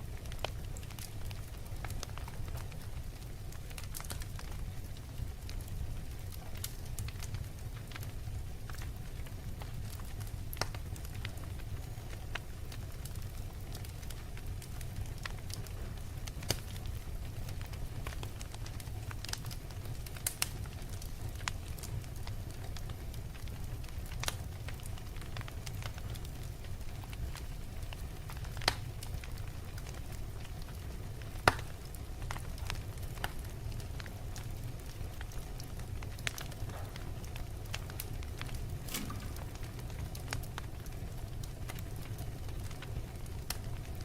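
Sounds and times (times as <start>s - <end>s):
fire crackling: 0.0s - 44.0s.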